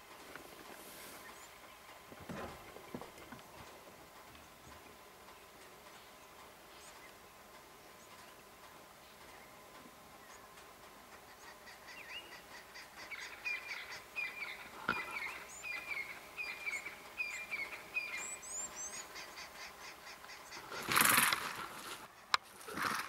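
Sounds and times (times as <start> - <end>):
faint steady ticking: 0.0 - 23.0
bird chirping: 1.0 - 22.8
loud rasping burst: 20.6 - 23.0.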